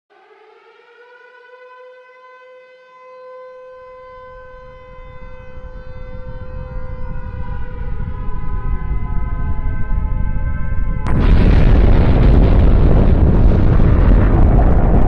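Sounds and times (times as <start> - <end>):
siren-like horn tone: 0.1 - 11.6
low rumble: 5.6 - 15.0.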